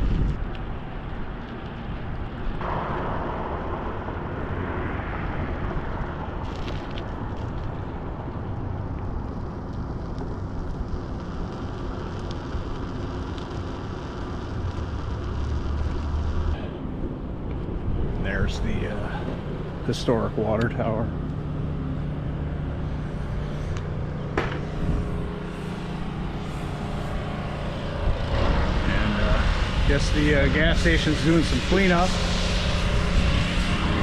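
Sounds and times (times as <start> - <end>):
road traffic noise: 0.0 - 34.0
vehicle passing close by: 21.4 - 34.0.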